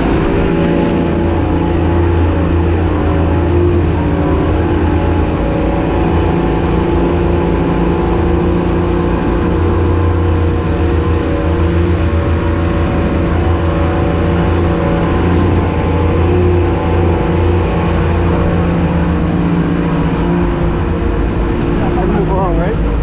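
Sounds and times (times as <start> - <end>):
brief high hiss: 15.1 - 15.9.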